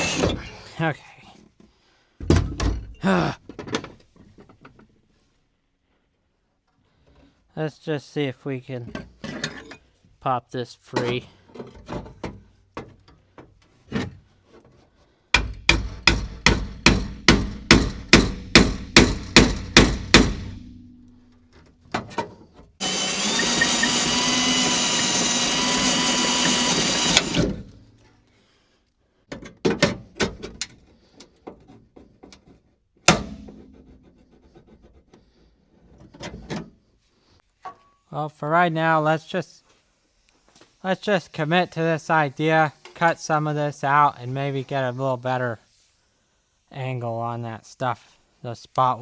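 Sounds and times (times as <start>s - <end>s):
power tool running: 0.0s - 0.7s, 22.8s - 27.6s
hammer on sheet metal: 15.4s - 21.0s.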